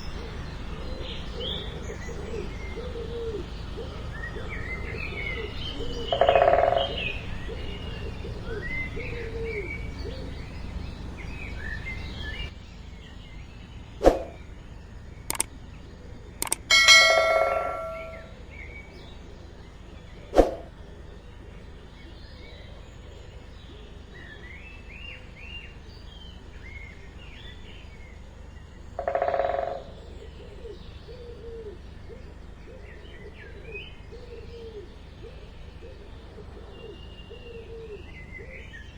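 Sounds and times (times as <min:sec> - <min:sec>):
sharp clicks or taps: 0:16.4 - 0:18.2
birds chirping and twittering: 0:16.4 - 0:18.3.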